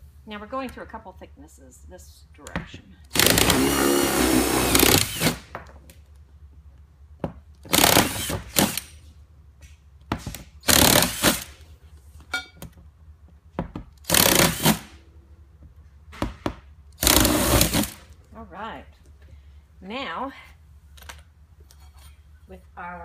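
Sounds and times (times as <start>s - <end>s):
power drill boring through plastic: 3.1s - 5.4s, 7.7s - 8.9s, 10.6s - 11.5s, 14.0s - 14.9s, 17.0s - 18.0s.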